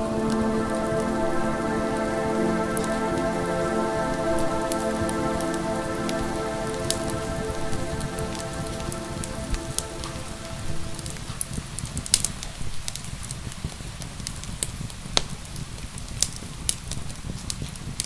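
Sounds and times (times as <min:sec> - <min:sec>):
fireplace fire crackling: 0:00.0 - 0:12.2
soft held music chord: 0:00.0 - 0:12.3
rain: 0:00.0 - 0:18.0.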